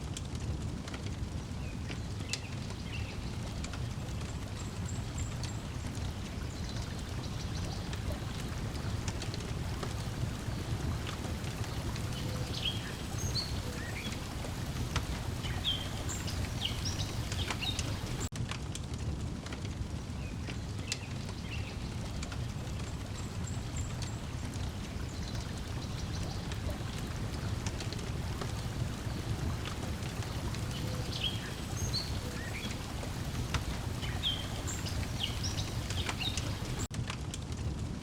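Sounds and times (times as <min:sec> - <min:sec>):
wood fire crackling: 0:00.0 - 0:38.0
water lapping: 0:04.4 - 0:18.3, 0:21.4 - 0:36.9
bird chirps: 0:11.8 - 0:18.3, 0:34.0 - 0:36.8.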